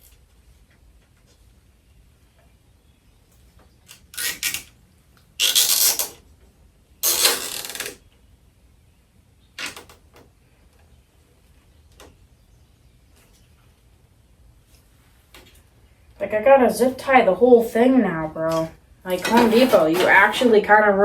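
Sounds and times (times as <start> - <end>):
rustling and scraping of prop parts: 3.6 - 4.8, 5.4 - 6.2, 7.0 - 8.1, 18.4 - 20.5.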